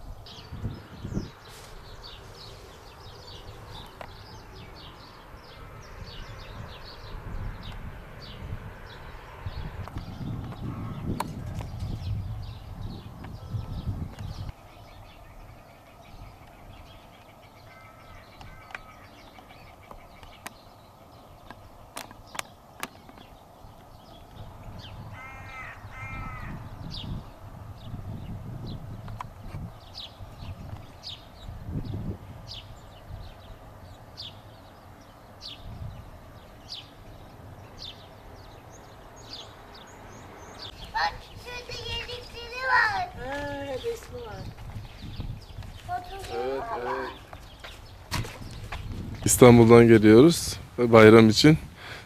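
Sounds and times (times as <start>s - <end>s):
small birds chirping: 0.0s - 52.0s
crow cawing: 17.6s - 19.3s, 25.1s - 26.7s.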